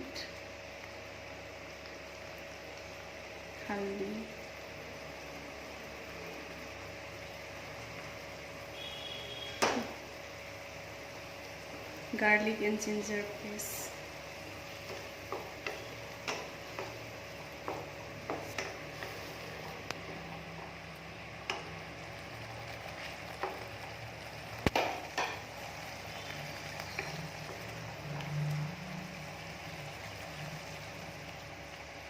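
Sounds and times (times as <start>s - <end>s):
paste sizzling in a pan: 0.4s - 32.0s
spoon knocking against pan: 24.7s - 25.4s.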